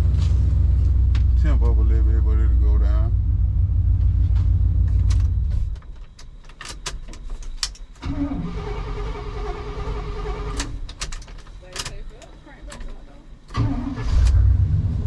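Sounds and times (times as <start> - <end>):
pickup truck engine running: 0.0 - 5.8
engine clicking: 7.6 - 14.5
engine starting: 8.0 - 10.9, 13.5 - 15.0.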